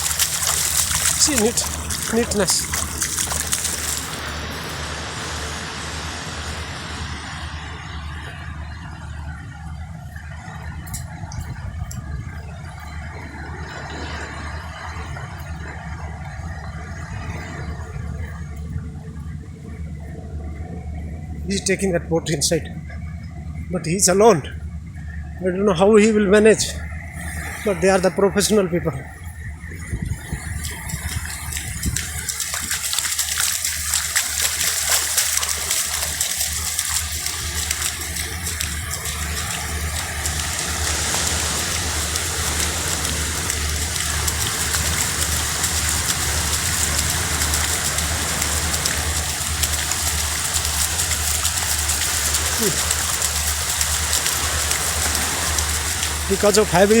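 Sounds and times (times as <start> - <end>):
waves breaking on a beach: 0.0 - 11.5, 12.6 - 18.4, 29.8 - 57.0
goods train rumbling: 0.0 - 57.0.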